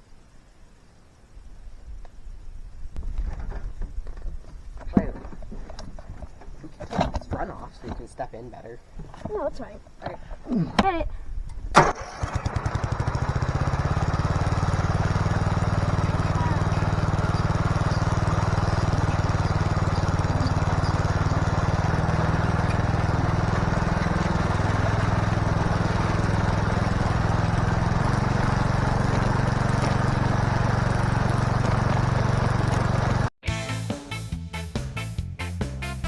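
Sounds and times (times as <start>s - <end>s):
electric starter cranking engine: 11.5s - 33.3s.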